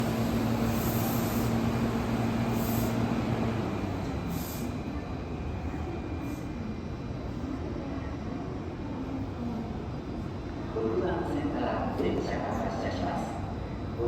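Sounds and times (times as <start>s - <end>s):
electric train motor hum: 0.0s - 4.4s
train running noise: 0.0s - 7.5s.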